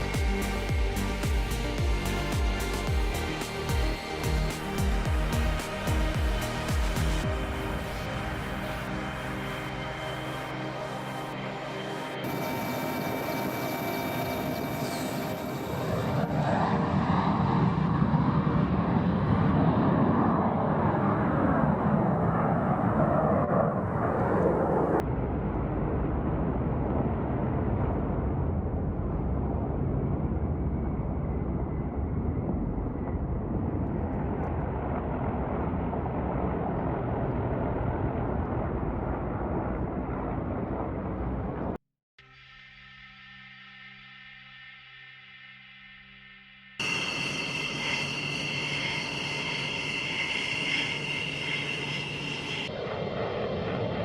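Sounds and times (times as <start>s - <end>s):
aircraft engine roar: 0.0s - 41.8s, 46.7s - 54.0s.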